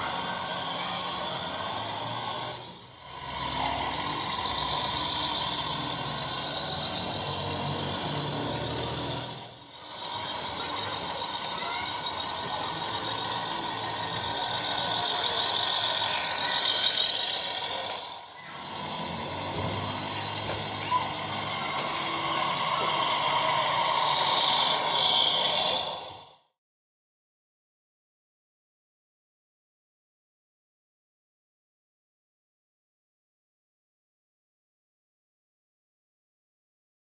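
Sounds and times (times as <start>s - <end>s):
steady high tone: 0.0s - 26.3s
toy truck diesel engine sounds: 0.0s - 26.5s.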